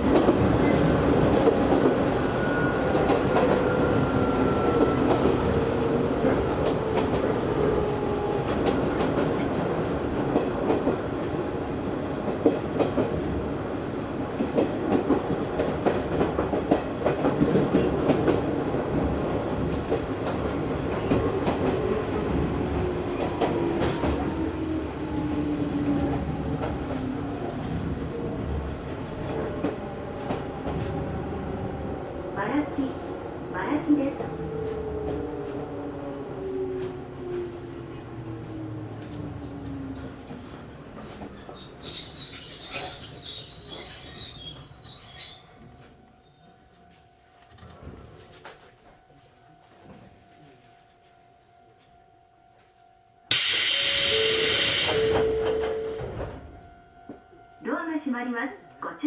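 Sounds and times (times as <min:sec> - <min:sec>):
train drive whine: 0:00.0 - 0:42.0, 0:53.3 - 0:57.7
train wheels clicking on rail joints: 0:53.3 - 0:56.5.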